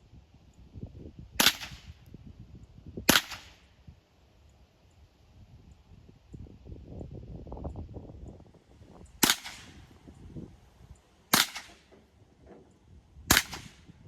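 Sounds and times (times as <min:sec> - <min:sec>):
rifle shots: 0:01.4 - 0:01.9, 0:03.1 - 0:03.6, 0:09.2 - 0:09.8, 0:11.3 - 0:11.9, 0:13.3 - 0:13.9.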